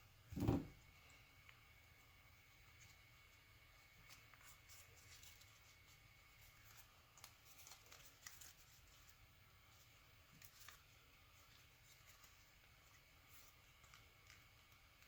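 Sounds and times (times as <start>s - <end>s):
paper rustling and creasing: 3.8s - 15.0s
soft paper ticks: 6.5s - 9.2s, 10.3s - 15.0s.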